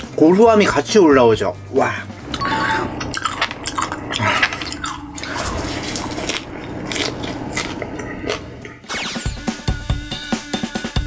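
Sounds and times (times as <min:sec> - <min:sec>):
wet mouth sounds: 0:03.0 - 0:08.8
crunching of fresh leaves: 0:03.4 - 0:08.5.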